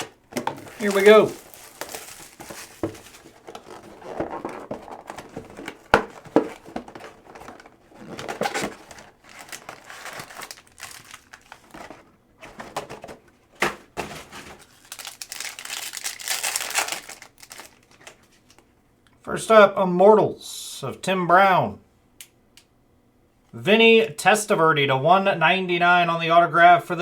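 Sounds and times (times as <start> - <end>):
card pack wrappers tearing and crinkling: 0.0 - 12.1, 14.1 - 18.6.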